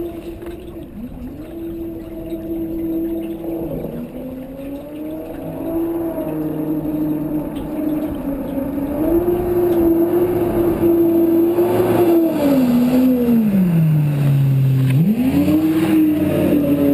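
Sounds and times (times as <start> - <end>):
motorcycle engine revving: 8.9 - 16.9.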